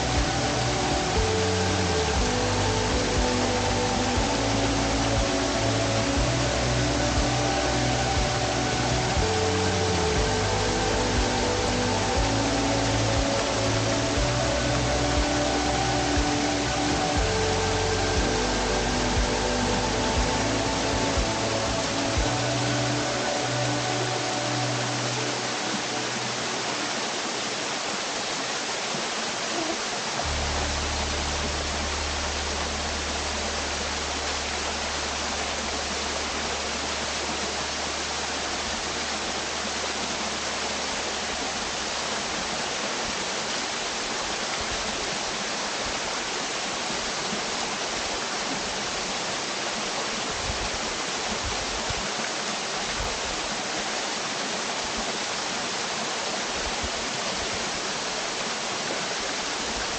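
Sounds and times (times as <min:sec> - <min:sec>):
waterfall rushing: 0:00.0 - 0:59.9
low steady hum: 0:29.6 - 0:39.6.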